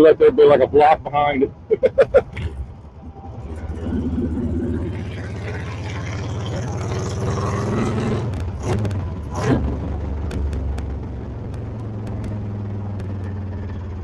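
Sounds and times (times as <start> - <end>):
motorcycle engine accelerating hard: 3.2 - 14.0.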